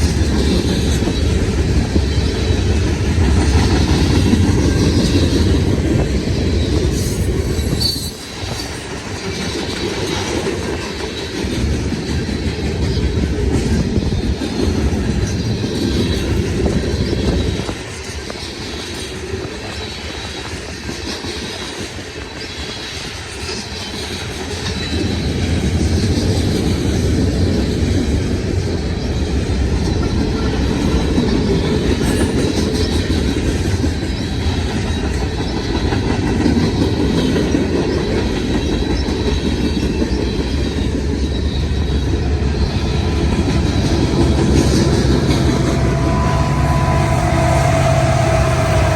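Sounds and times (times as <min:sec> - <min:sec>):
freight train rumbling past: 0:00.0 - 0:48.9
wheels clacking over rail joints: 0:29.7 - 0:48.9
thin high tone: 0:42.1 - 0:48.9.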